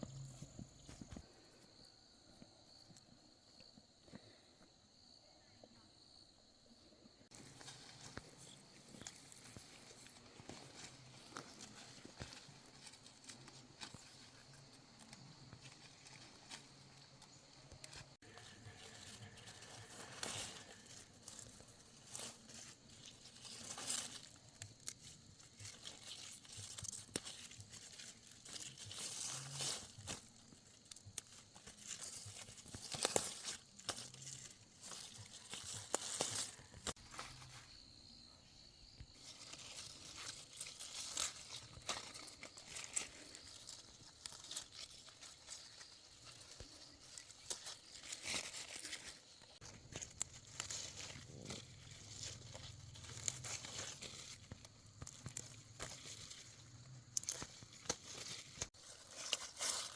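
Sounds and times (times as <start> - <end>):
stems tearing and snapping: 7.3 - 37.6, 39.2 - 59.9
leaves rustling: 7.3 - 59.9.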